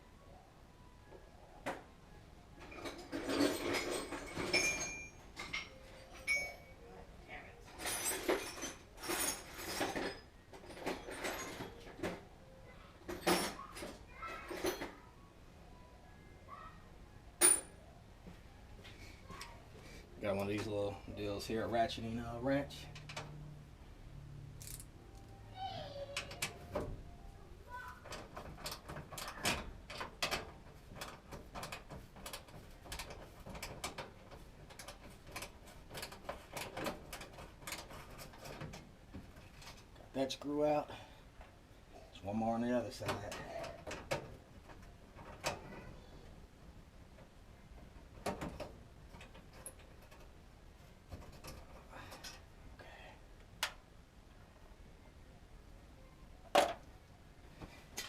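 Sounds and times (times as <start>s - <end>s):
metal hand tools clattering: 2.7s - 6.7s.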